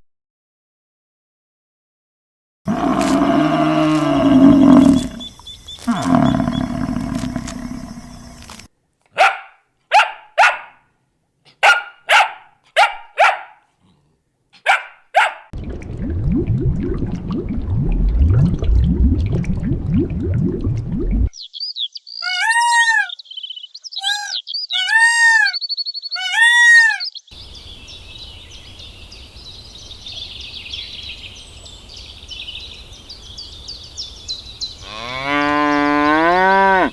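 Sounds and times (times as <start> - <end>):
long loud animal call: 2.7 - 8.5
dog barking: 9.1 - 10.9, 11.5 - 13.8, 14.5 - 15.5
low rough rumbling: 15.6 - 21.3.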